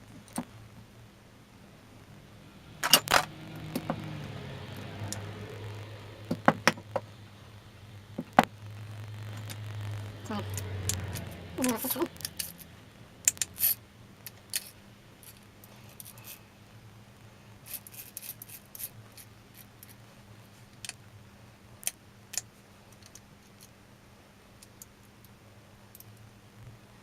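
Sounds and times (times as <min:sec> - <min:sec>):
low hum: 0:00.0 - 0:14.3
small metallic clicks and clinks: 0:10.5 - 0:16.4.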